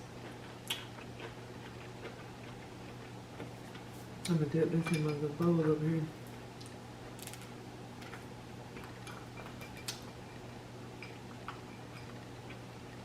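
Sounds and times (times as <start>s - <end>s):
chewing: 0.2s - 4.0s.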